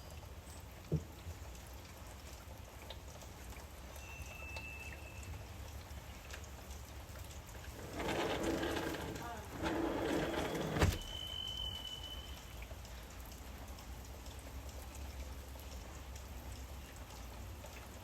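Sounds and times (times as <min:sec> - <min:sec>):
drips and ticks: 0:00.0 - 0:18.0
light rain: 0:00.0 - 0:18.0
high bird whistle: 0:11.0 - 0:12.6.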